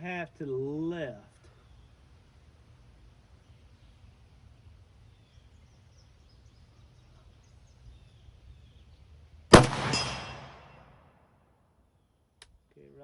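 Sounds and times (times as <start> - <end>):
rifle shot: 9.5 - 11.2.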